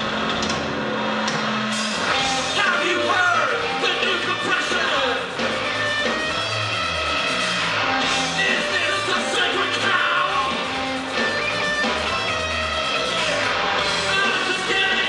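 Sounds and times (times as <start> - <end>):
bass guitar: 0.0 - 15.0
drums: 0.0 - 15.0
electric guitar: 0.0 - 15.0
person singing or shouting: 2.3 - 5.6, 8.0 - 10.8, 11.4 - 15.0.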